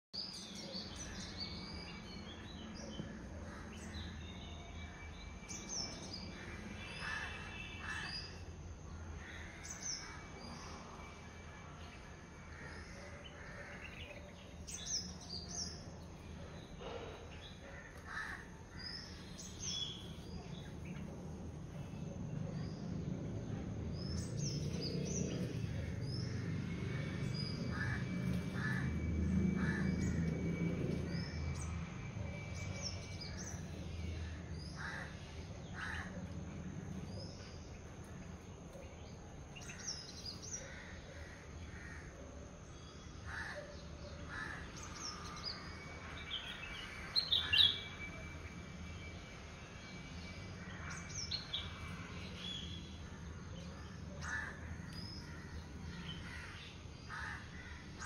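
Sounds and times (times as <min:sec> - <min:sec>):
birds chirping and whistling: 0:44.7 - 0:53.0.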